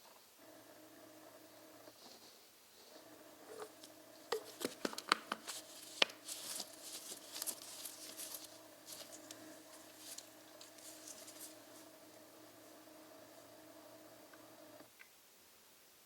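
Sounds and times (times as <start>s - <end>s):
faint steady hum: 0.0s - 16.0s
scratchy rustling: 1.6s - 14.8s
sharp clicks and taps: 3.5s - 6.2s.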